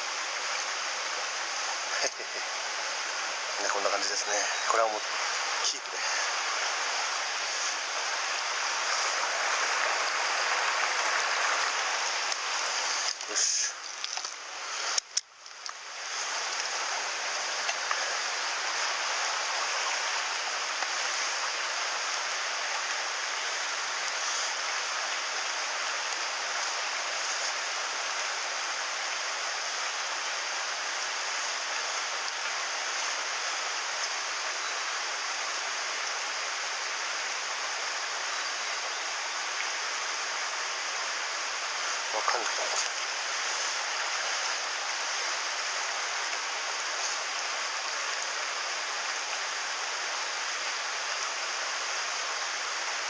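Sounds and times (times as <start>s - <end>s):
water rushing over rocks: 0.0s - 53.0s.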